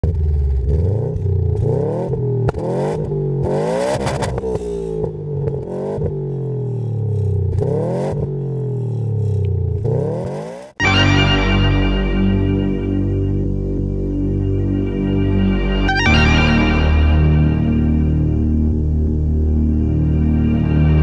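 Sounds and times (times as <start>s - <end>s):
exhaust cracks: 0.0s - 10.8s
car engine revving: 0.0s - 10.9s.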